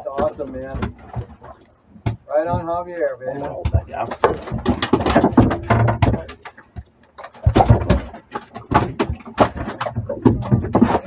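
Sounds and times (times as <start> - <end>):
knocks and rattles of gear: 0.0 - 11.0
muffled voices: 2.3 - 7.0.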